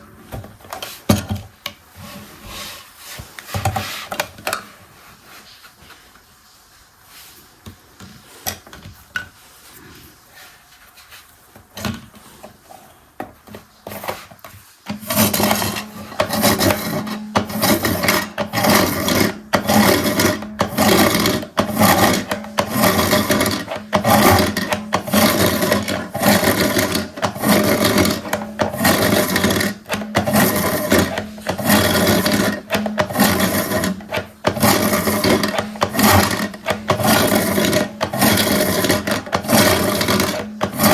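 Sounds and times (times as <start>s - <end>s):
toy washing machine churning: 13.4s - 40.9s.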